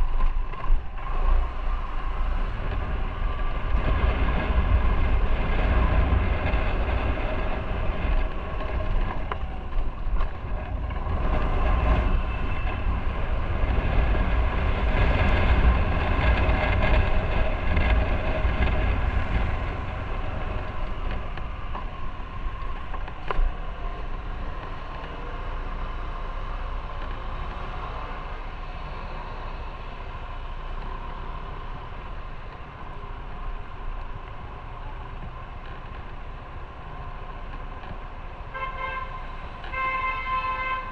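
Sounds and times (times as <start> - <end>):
wind rumbling on microphone: 0.0 - 40.9.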